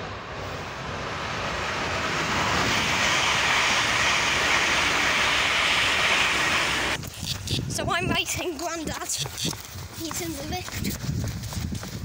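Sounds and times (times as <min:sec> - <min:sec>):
train passing at speed: 0:00.0 - 0:07.0.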